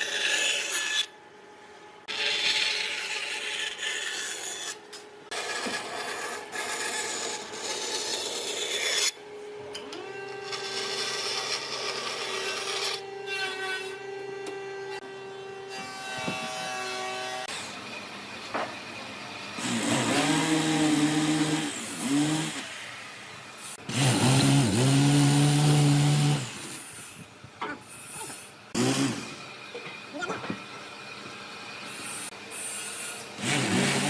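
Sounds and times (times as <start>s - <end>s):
power tool cutting wood: 10.0s - 17.8s, 19.5s - 23.0s, 23.6s - 27.2s, 28.0s - 29.5s, 31.9s - 34.0s.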